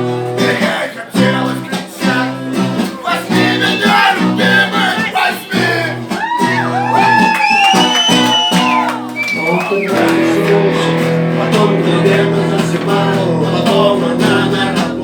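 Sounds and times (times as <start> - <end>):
person singing: 0.0 - 6.3, 9.4 - 15.0
strummed guitar chords: 0.0 - 7.2, 7.8 - 15.0
bent guitar notes: 5.5 - 15.0.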